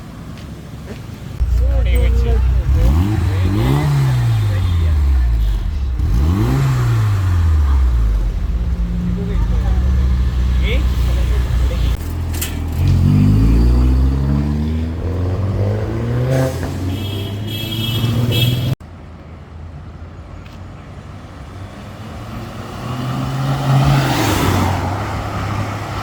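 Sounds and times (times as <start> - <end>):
car accelerating past: 21.9 - 26.0.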